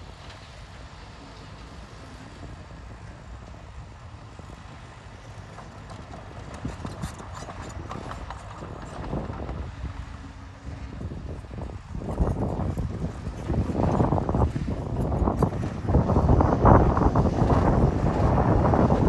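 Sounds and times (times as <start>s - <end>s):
bulldozer engine rumbling: 0.0s - 19.0s.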